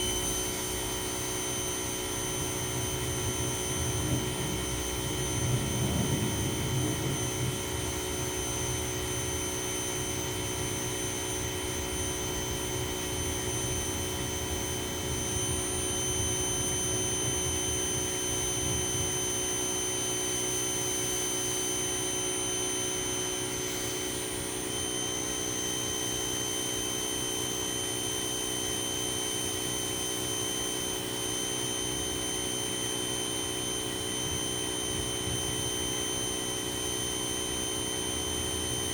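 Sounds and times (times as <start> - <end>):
pressure washer running: 0.0 - 38.9
low rumble: 3.1 - 8.4.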